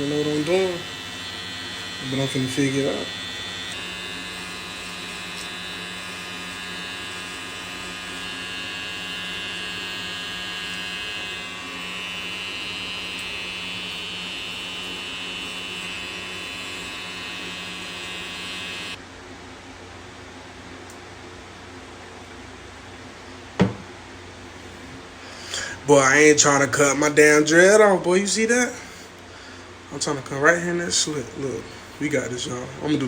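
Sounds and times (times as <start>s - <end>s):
electric hair clippers buzzing: 0.0s - 19.0s.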